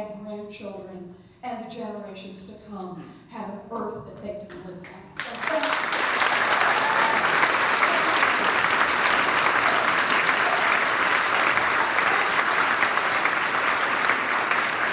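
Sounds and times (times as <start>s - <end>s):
crowd applauding: 5.2s - 14.9s.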